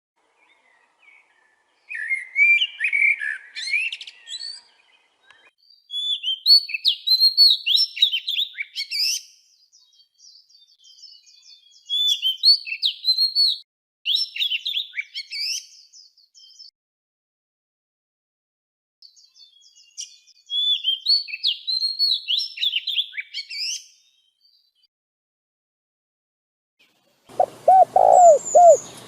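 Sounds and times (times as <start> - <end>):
songbird twittering: 0.4 - 16.7, 27.3 - 29.0.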